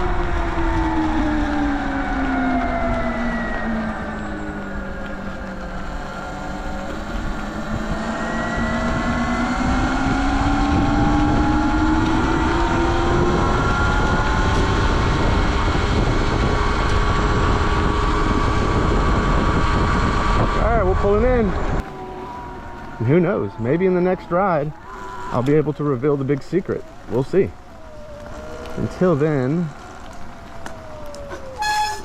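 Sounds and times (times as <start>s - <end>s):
electric motor whine: 0.0s - 20.5s
wind and road noise: 0.0s - 32.0s.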